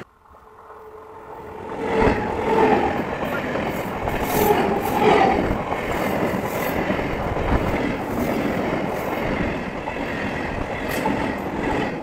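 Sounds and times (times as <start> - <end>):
rush of passing train cars: 0.0 - 12.0
train wheels rumbling on rails: 1.2 - 12.0.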